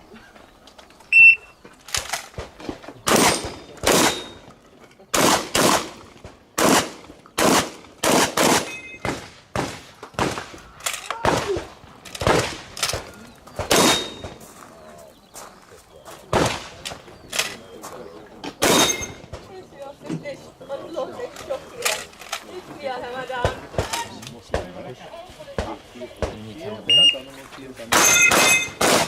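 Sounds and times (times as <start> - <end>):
short high beep: 1.1 - 1.5, 26.9 - 27.3
shotgun shots with echo: 3.0 - 4.4, 5.1 - 10.6, 11.2 - 14.4, 16.3 - 17.0, 18.6 - 19.5, 27.9 - 29.0.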